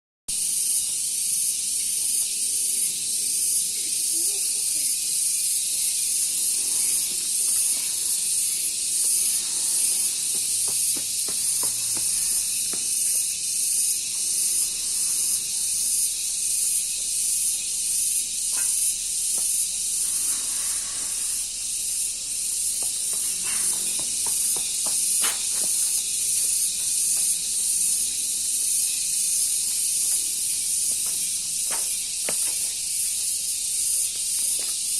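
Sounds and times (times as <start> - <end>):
crickets trilling: 0.3 - 34.9.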